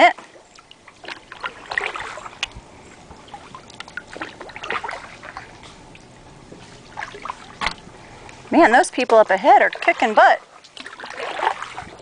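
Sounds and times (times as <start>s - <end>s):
paddle splashing in water: 0.2s - 5.9s, 9.0s - 12.0s.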